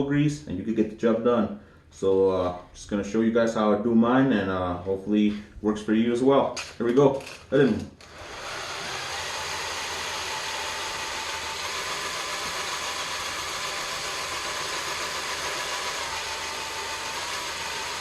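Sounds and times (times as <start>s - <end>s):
electric drill whirring: 8.0s - 18.0s.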